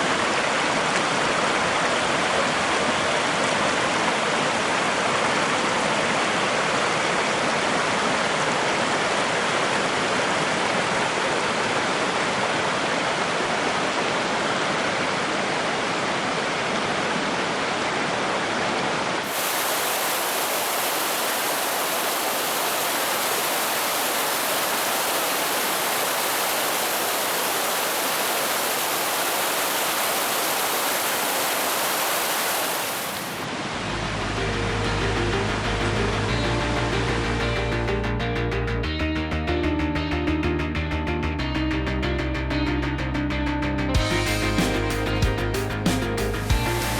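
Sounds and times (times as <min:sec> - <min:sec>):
rushing stream water: 0:00.0 - 0:37.0, 0:44.0 - 0:46.9
music: 0:33.8 - 0:46.9.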